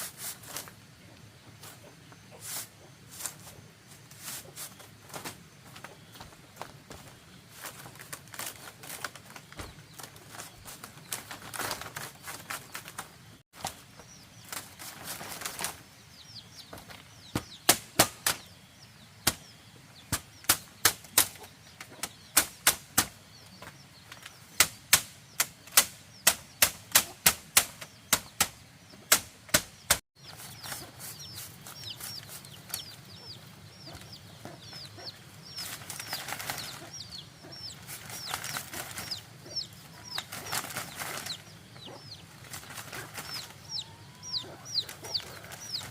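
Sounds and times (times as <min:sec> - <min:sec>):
tool striking bamboo: 0:17.4 - 0:18.4, 0:24.6 - 0:30.0.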